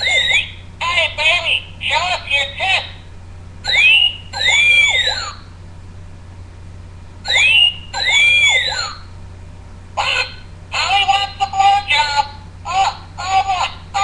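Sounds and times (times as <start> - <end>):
pet bird whistling: 0.0 - 0.7, 3.6 - 5.5, 7.2 - 9.1
bird call: 3.6 - 5.4, 7.3 - 9.0.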